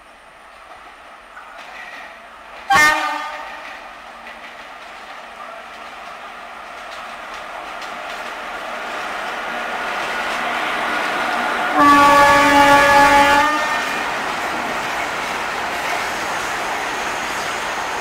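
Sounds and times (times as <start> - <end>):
freight train running past: 0.0 - 18.0
locomotive air horn blast: 2.7 - 3.6, 11.7 - 14.0.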